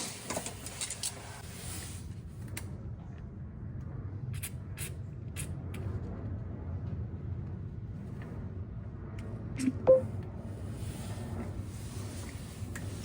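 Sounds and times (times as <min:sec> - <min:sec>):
short loud beep: 0:09.6 - 0:10.1.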